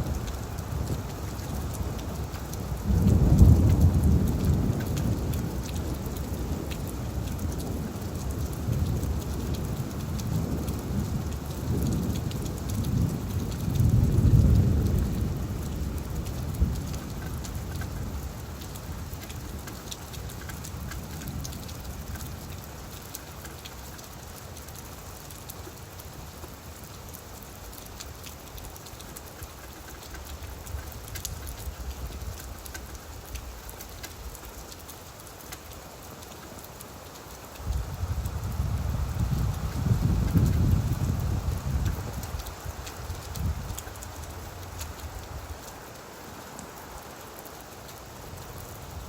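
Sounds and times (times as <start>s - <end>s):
low roll of thunder: 0.0s - 19.2s, 37.6s - 45.5s
rain falling on leaves: 0.0s - 49.0s.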